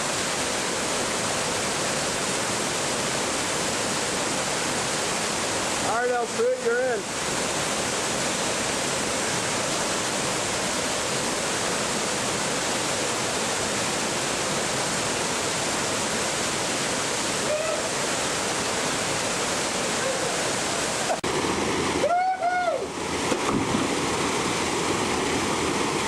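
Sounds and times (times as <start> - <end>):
water pouring over waterfall: 0.0 - 26.0
faint voice calling: 17.4 - 18.0, 19.9 - 20.5.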